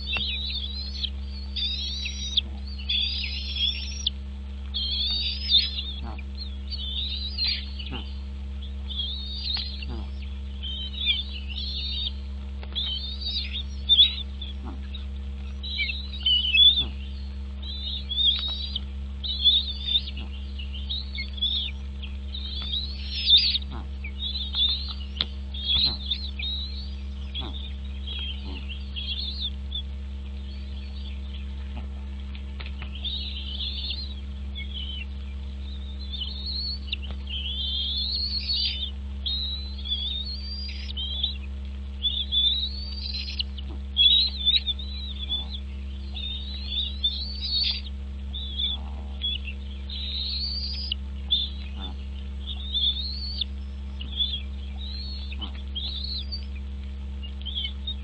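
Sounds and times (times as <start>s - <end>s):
birds chirping: 0.0s - 58.0s
steady low hum: 0.0s - 58.0s.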